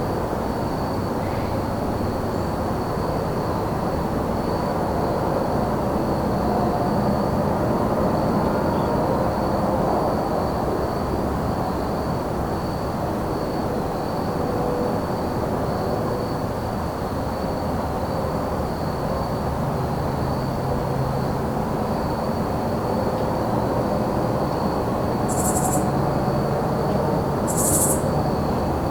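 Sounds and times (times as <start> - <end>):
crickets trilling: 0.0 - 28.9
distant engine rumble: 24.9 - 28.9.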